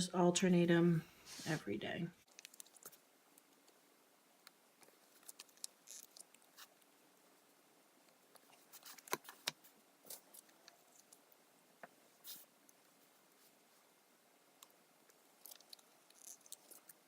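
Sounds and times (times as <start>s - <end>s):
sticker sheets rustling: 8.4s - 11.2s.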